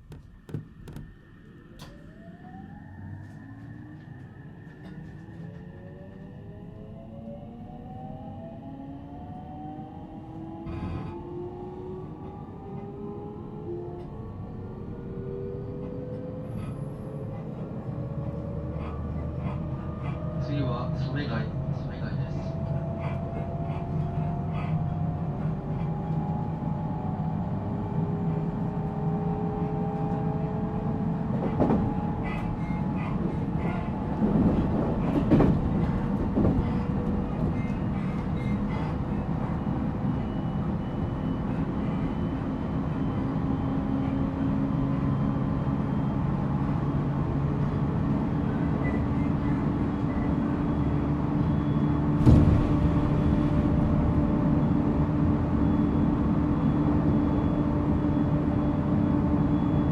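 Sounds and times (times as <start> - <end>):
train wheels rumbling on rail: 29.4 - 51.3, 52.1 - 56.4.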